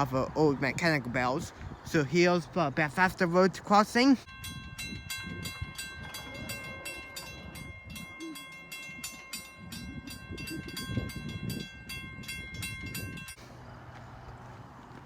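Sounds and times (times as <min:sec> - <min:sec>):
railroad crossing bells ringing: 0:04.2 - 0:13.4.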